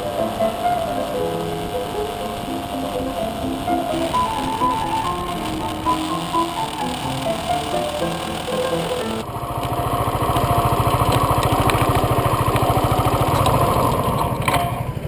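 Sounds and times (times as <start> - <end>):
music: 0.0 - 9.3
motorcycle engine running: 0.0 - 15.0
sharp clicks: 0.0 - 15.0.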